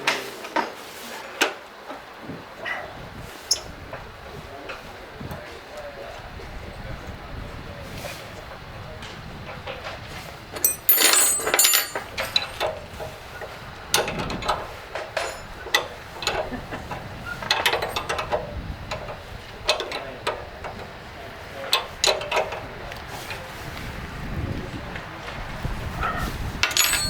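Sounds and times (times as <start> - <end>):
metal tools clinking and knocking: 10.6 - 12.8, 15.0 - 15.9, 17.5 - 18.3, 26.6 - 27.0.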